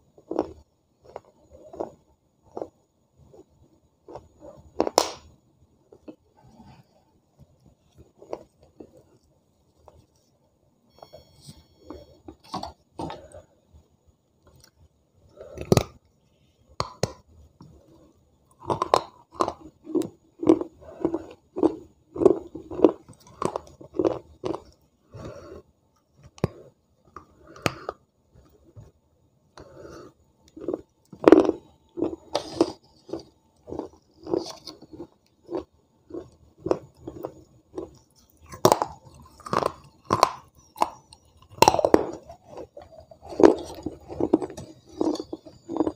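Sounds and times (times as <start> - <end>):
crunching bites: 30.5 - 45.9
wet chewing: 30.5 - 45.9.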